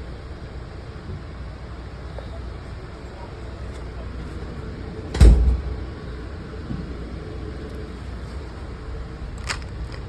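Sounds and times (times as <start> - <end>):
train rumble from inside: 0.0 - 10.0
loud sharp thump: 5.1 - 5.9.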